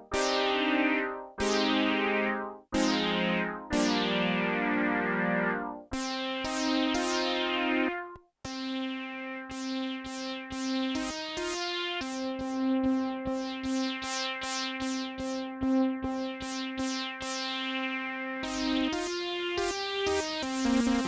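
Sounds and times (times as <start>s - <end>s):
synthesizer playing plucky notes: 20.4s - 21.0s.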